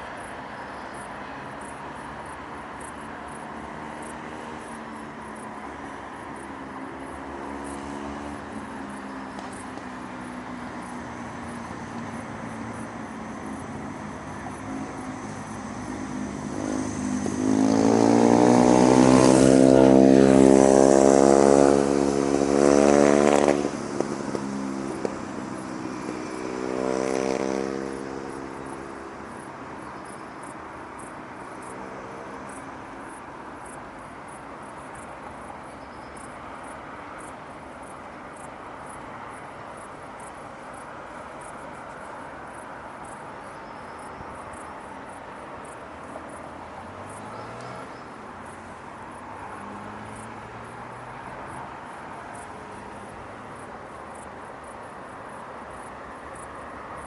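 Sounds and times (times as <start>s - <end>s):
distant town traffic: 0.0s - 57.0s
vehicle engine accelerating past: 7.2s - 9.6s, 10.8s - 29.5s, 46.9s - 48.2s, 49.2s - 53.0s.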